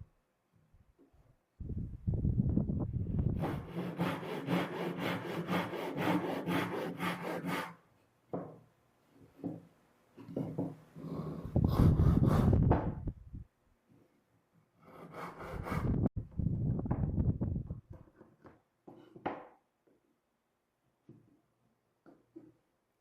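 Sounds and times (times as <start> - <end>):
hand saw cutting wood: 3.4 - 7.8, 11.0 - 12.7, 14.8 - 16.1.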